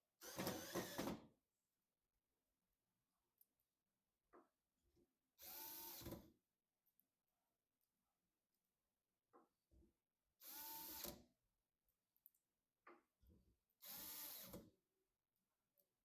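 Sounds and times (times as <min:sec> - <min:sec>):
electric screwdriver whirring: 0:00.2 - 0:01.1, 0:13.8 - 0:14.5.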